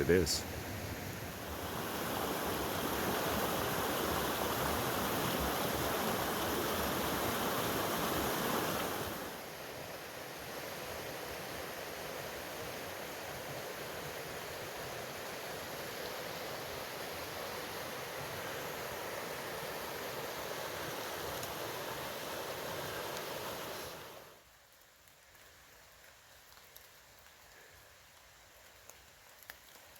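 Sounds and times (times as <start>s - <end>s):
steady hiss: 0.0s - 29.9s.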